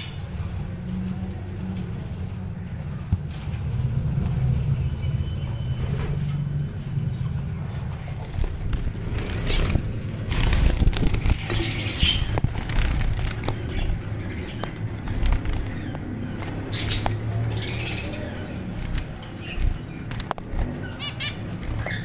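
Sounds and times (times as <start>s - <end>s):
steady low rumble: 0.0s - 22.0s
budgerigars chirping: 11.2s - 12.4s, 13.5s - 18.6s, 19.4s - 22.0s.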